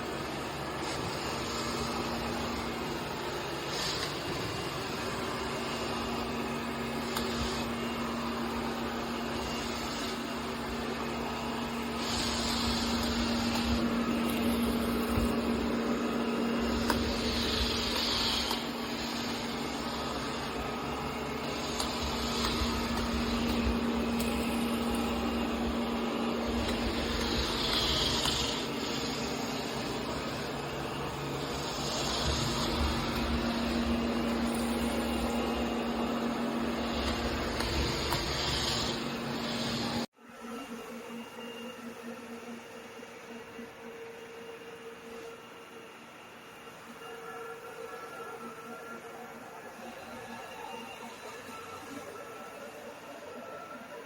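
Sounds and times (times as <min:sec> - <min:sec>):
robot vacuum motor hum: 0:00.0 - 0:40.1.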